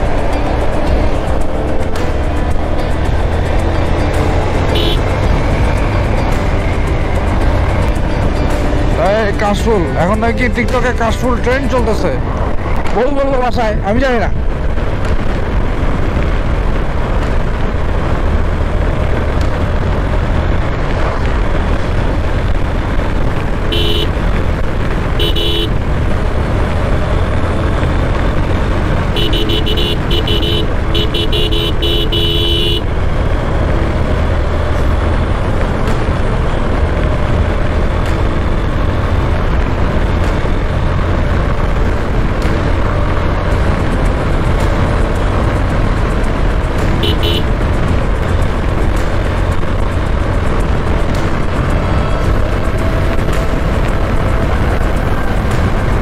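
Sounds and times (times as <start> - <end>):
motorcycle engine rumble: 0.0 - 56.0
wind: 0.0 - 56.0
vehicle horn beeps: 4.7 - 5.1, 23.7 - 24.2, 25.2 - 25.8, 29.2 - 32.9, 47.0 - 47.5.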